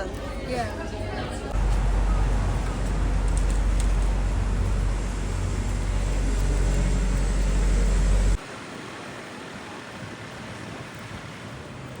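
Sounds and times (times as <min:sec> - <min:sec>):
low outdoor rumble: 0:00.8 - 0:08.4.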